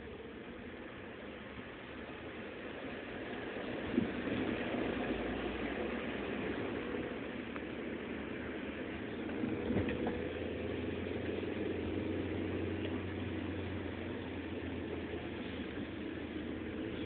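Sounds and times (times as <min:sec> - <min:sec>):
car engine drone and road noise: 0:00.0 - 0:17.0.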